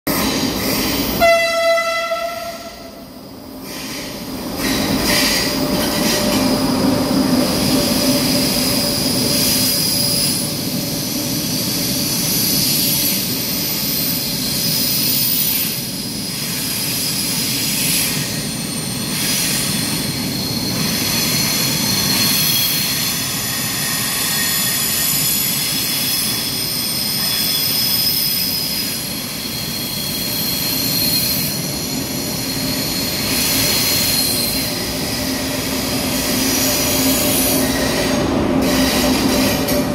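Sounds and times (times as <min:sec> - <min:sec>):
train rolling past: 0:00.1 - 0:39.9
train horn blast: 0:01.2 - 0:03.1.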